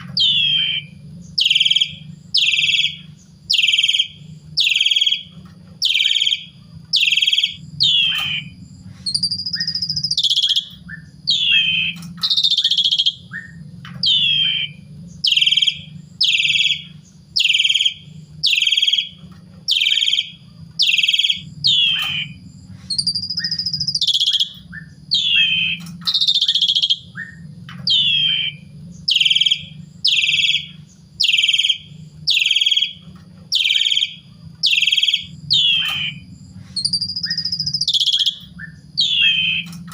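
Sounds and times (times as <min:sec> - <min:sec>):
bird whistle: 0:00.0 - 0:39.9
starling singing: 0:00.0 - 0:39.9.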